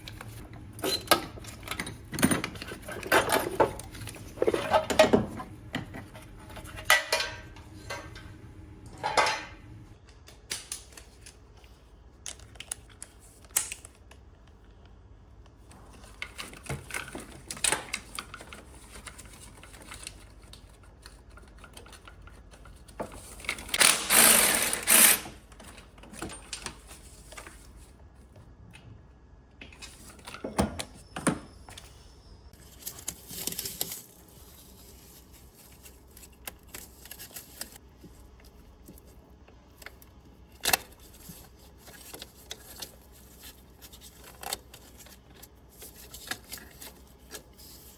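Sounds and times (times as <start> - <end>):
objects being handled: 0.0 - 9.6.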